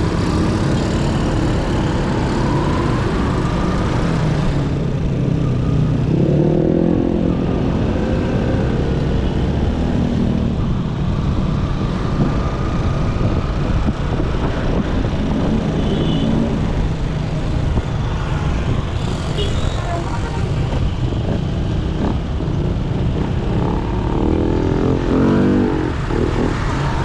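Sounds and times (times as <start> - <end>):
road and wind noise: 0.0 - 27.0
motorcycle engine revving: 20.7 - 27.0.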